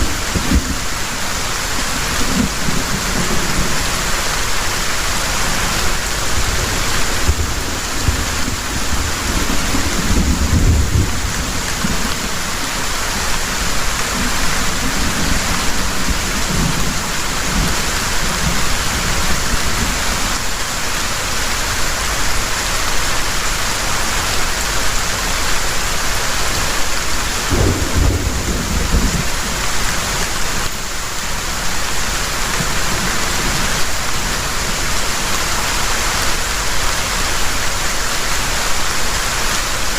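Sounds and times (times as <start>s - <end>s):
heavy rain falling: 0.0s - 39.9s
rolling thunder: 6.3s - 12.4s, 27.5s - 30.7s.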